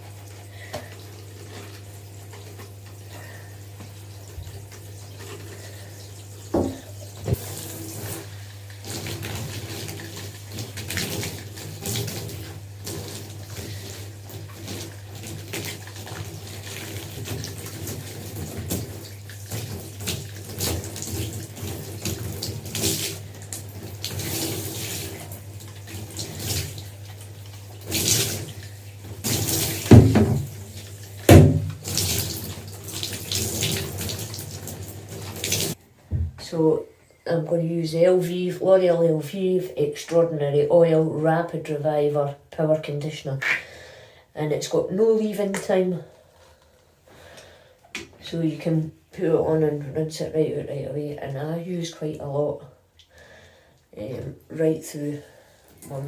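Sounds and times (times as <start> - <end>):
water running from a tap: 0.0 - 35.8, 54.1 - 56.0.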